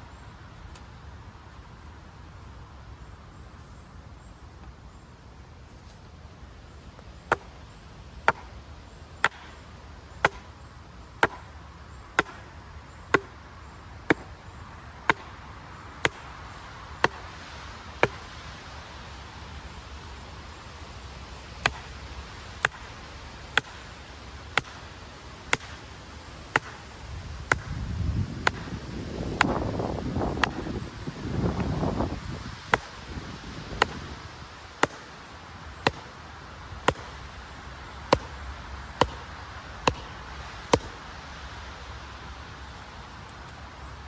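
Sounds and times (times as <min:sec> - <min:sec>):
hammer driving stake into ground: 0:08.3 - 0:08.6, 0:09.2 - 0:09.6, 0:10.2 - 0:10.6, 0:11.2 - 0:13.5, 0:14.1 - 0:14.4, 0:15.1 - 0:16.4, 0:17.0 - 0:17.3, 0:18.0 - 0:18.4, 0:21.6 - 0:24.9, 0:25.5 - 0:25.9, 0:26.5 - 0:30.8, 0:31.4 - 0:41.1.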